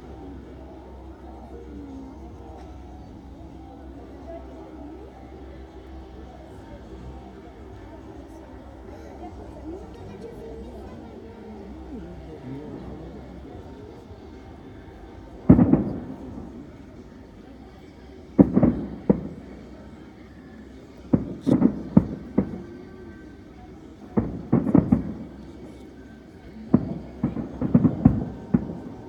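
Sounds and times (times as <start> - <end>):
fireworks bursting: 15.2 - 17.0, 18.4 - 20.2, 20.9 - 29.0.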